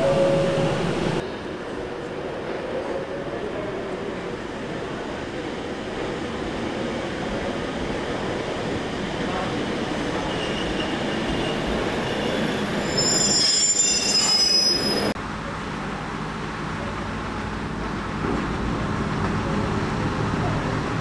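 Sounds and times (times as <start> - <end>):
diesel railbus rumble: 0.0 - 21.0
high-pitched metallic squeal: 10.2 - 15.2.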